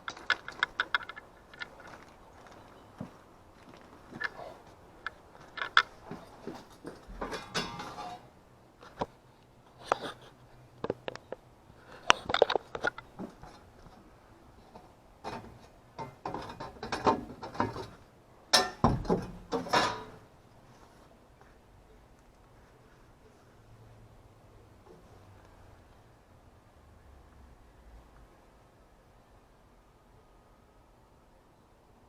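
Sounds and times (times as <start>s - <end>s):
tools and metal parts clattering: 0.0s - 3.0s, 4.0s - 8.3s, 12.1s - 13.6s, 15.2s - 20.3s.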